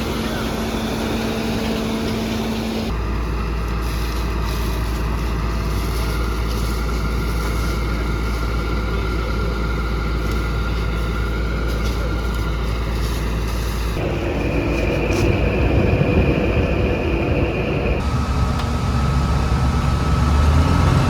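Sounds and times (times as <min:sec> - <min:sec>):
combine harvester engine droning: 0:00.0 - 0:21.0
steady high whine: 0:13.7 - 0:21.0.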